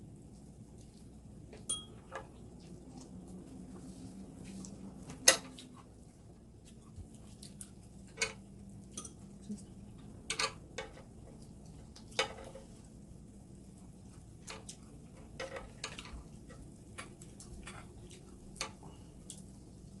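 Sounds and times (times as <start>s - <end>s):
low steady hum: 0.0s - 20.0s
utensils clinking against dishes: 1.6s - 2.2s, 8.2s - 9.2s.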